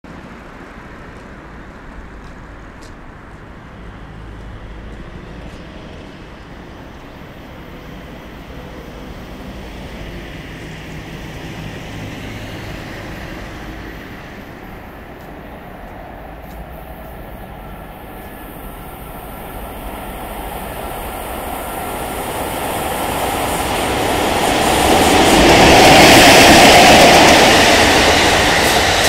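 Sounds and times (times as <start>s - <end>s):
train rumble approaching: 0.1s - 29.0s.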